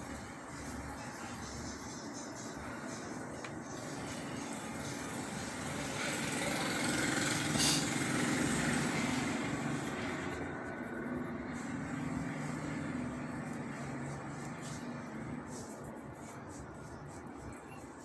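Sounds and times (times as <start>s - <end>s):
motor vehicle passing by: 3.7s - 17.6s.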